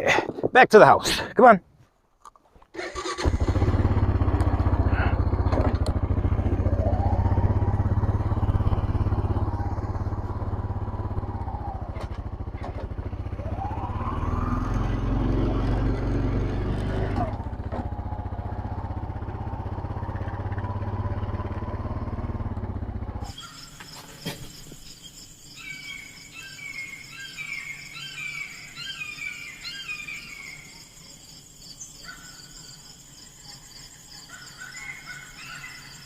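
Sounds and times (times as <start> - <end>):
insect chorus: 3.0 - 36.0
birds chirping: 23.2 - 36.0.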